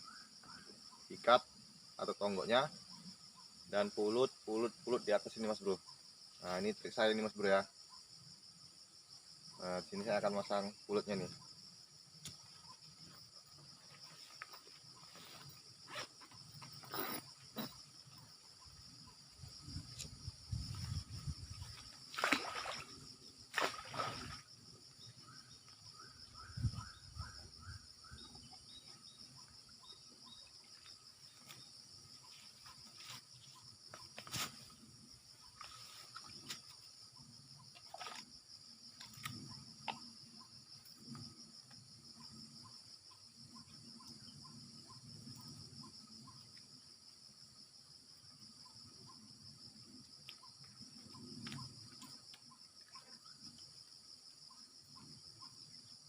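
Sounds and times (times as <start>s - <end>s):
insects chorus: 0.0s - 56.0s
rustling on a branch: 31.3s - 34.9s.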